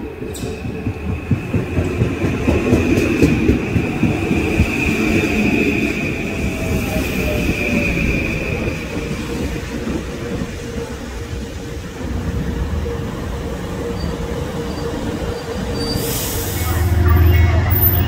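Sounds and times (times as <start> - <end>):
train wheels rumbling: 0.0 - 18.0
high squeal: 13.9 - 18.0.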